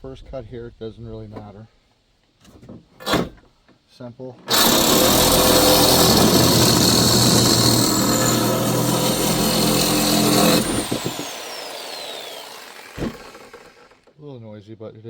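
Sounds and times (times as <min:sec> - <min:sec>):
saw motor whine winding down: 0:04.5 - 0:14.0
reciprocating saw cutting steel: 0:04.5 - 0:14.1.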